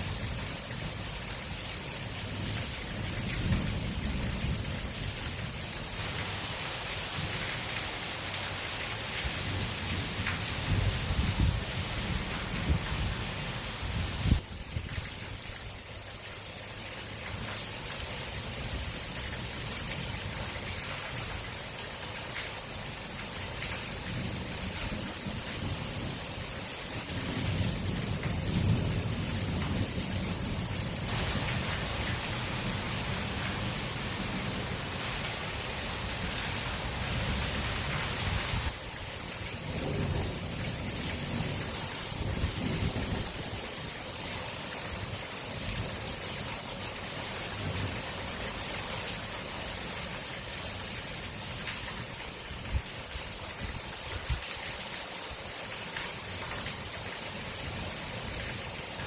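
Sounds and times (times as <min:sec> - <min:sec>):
heavy rain falling: 0:00.0 - 0:59.0
thunder rumbling: 0:31.1 - 0:38.8.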